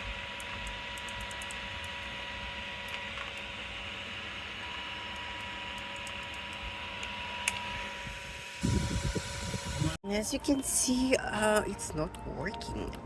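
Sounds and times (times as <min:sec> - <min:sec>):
small electric motors whining: 0:00.0 - 0:10.0.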